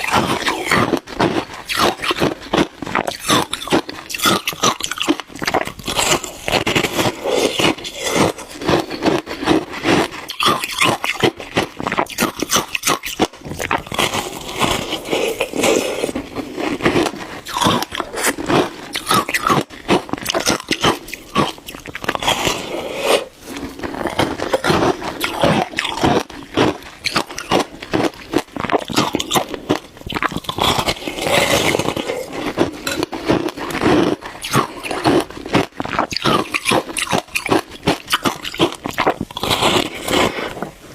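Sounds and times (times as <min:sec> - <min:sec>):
chewing shaved ice crunching: 0:00.0 - 0:40.8.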